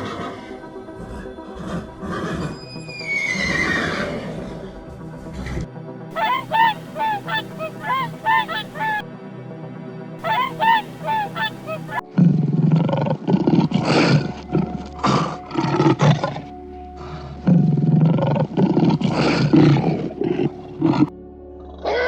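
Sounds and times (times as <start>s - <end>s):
background music: 5.6s - 13.1s
goose honking: 6.1s - 9.0s, 10.2s - 12.0s.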